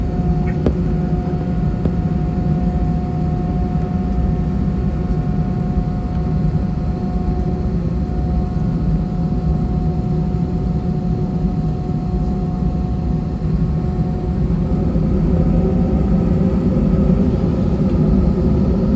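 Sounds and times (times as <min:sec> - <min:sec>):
jet engines rumbling in cabin: 0:00.0 - 0:18.9.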